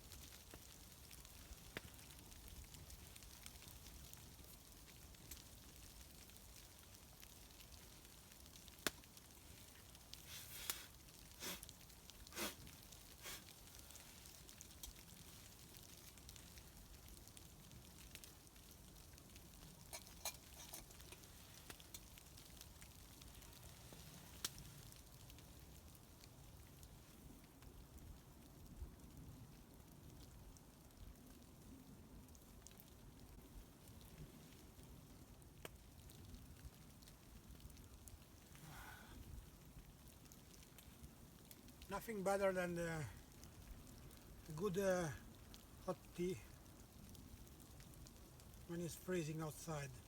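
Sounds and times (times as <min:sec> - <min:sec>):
campfire crackling: 0:00.0 - 0:50.0
low steady hiss: 0:00.0 - 0:50.0
sharp fire pops: 0:00.1 - 0:25.4.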